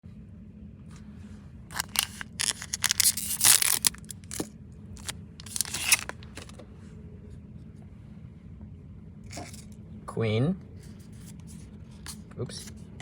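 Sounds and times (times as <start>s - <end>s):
foil pack tearing: 1.7s - 6.5s.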